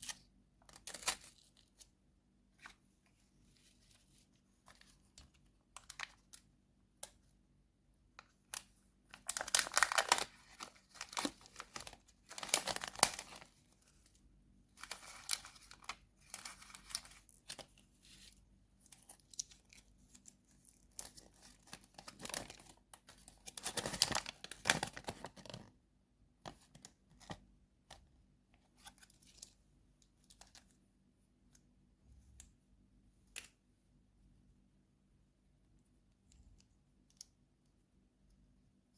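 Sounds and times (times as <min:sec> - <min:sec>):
packaging tearing and crinkling: 0:09.2 - 0:13.5, 0:23.5 - 0:25.4.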